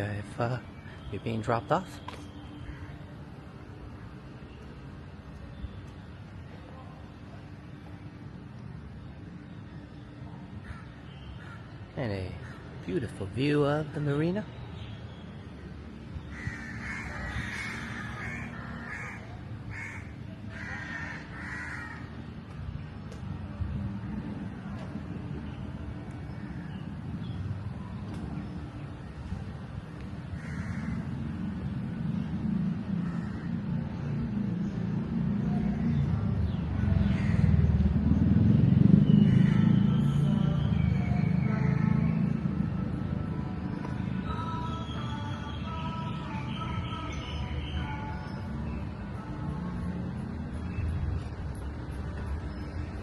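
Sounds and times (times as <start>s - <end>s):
vehicle engine rumbling: 14.6s - 46.4s, 47.4s - 53.0s.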